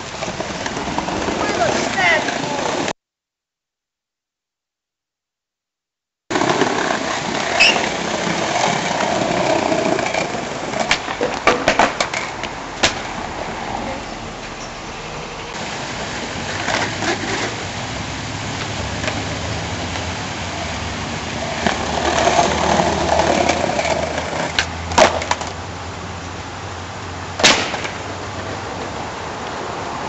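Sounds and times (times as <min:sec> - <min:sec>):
skateboard clacking on ground: 0:00.0 - 0:02.9, 0:06.3 - 0:14.0, 0:15.5 - 0:17.6, 0:18.6 - 0:19.4, 0:21.4 - 0:25.6, 0:27.4 - 0:29.1
skateboard wheels rolling on pavement: 0:00.0 - 0:03.0, 0:06.3 - 0:30.0.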